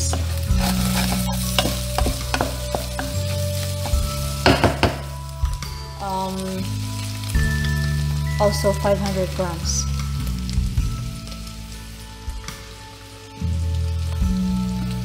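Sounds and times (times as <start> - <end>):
spatula scraping and knocking pan: 0.0 - 5.2
meat and onion sizzling in a pan: 0.0 - 15.0.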